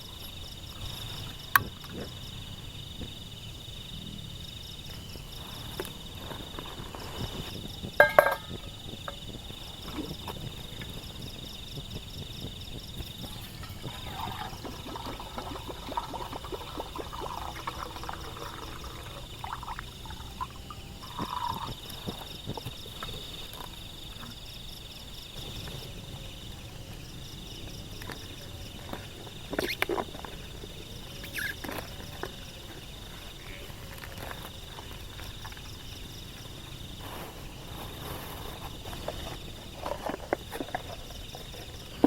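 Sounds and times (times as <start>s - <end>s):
insects trilling: 0.0s - 42.0s
clicks and knocks: 8.0s - 8.6s.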